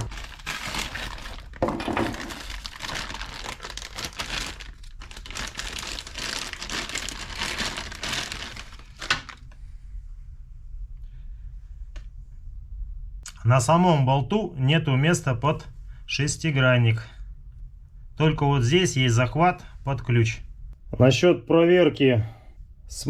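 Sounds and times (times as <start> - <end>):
packaging crinkling: 0.0 - 9.6.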